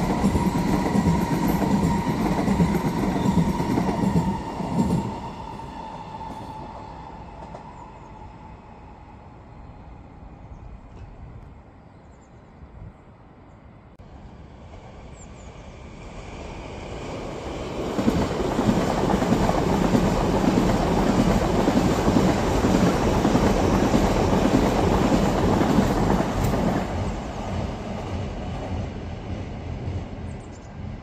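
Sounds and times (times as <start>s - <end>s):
train passing on tracks: 0.0s - 31.0s.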